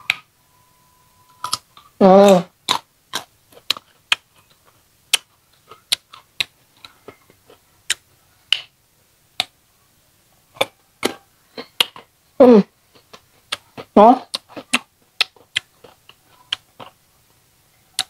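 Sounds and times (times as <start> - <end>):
crunchy fruit being chewed: 1.4 - 8.7, 10.5 - 12.2, 12.8 - 17.4.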